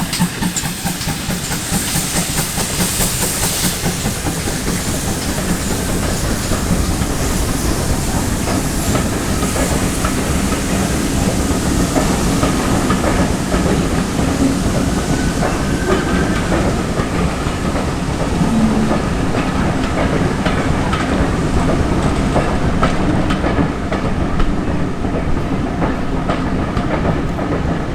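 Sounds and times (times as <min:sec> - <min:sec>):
train wheels clicking over rail joints: 0:00.0 - 0:18.2
steam hiss: 0:00.0 - 0:19.6
steady train rumble: 0:00.0 - 0:27.9.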